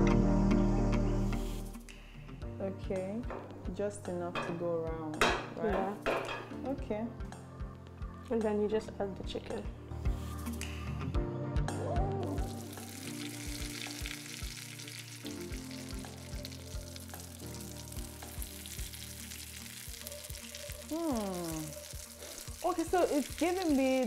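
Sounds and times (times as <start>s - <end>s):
background music with steady beat: 0.0s - 24.0s
chicken sizzling in hot oil: 12.5s - 24.0s.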